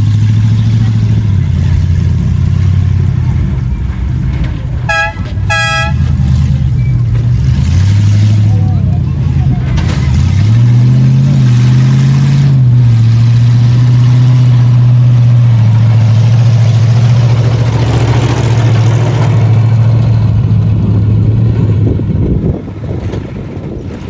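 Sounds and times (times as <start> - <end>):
large vehicle engine droning: 0.0 - 24.0.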